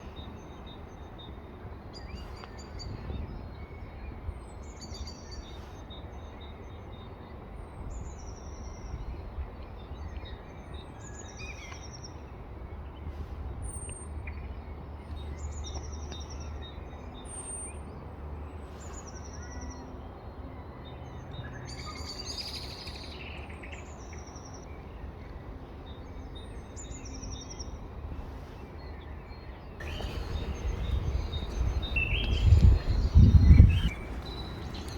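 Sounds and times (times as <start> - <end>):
bird calling: 29.8 - 34.9
rustling: 29.8 - 34.9
steady low rumble: 29.8 - 34.9.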